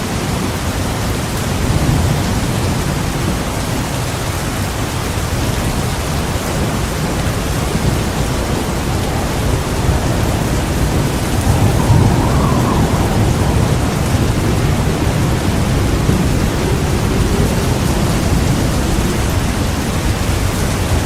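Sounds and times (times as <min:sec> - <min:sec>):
heavy rain falling: 0:00.0 - 0:21.0
low rumble of thunder: 0:00.0 - 0:21.0.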